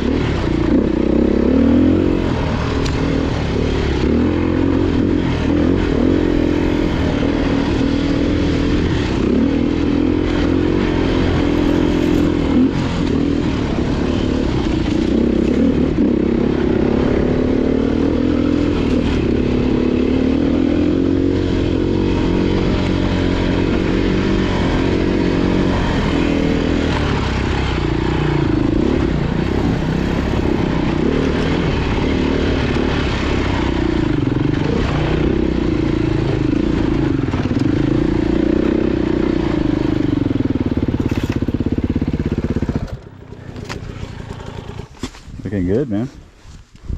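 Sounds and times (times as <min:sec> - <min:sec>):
off-road motorcycle engine revving: 0:00.0 - 0:46.6.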